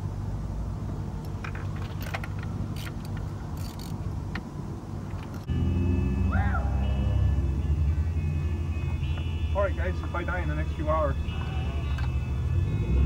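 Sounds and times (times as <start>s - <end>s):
car engine hum: 0.0s - 13.0s
metallic clinks and rattles: 1.3s - 4.1s, 11.3s - 12.5s.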